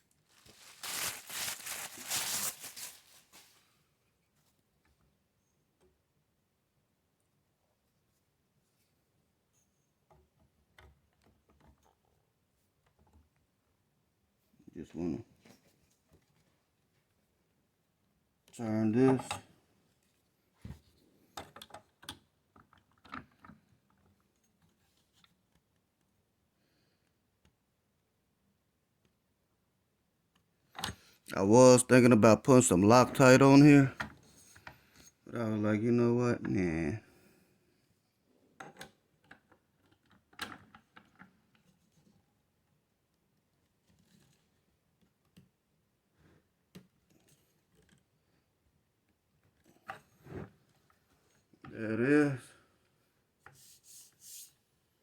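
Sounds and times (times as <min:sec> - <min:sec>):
faint clicks and handling noises: 0:18.5 - 0:26.2, 0:38.6 - 0:45.7, 0:46.4 - 0:51.8.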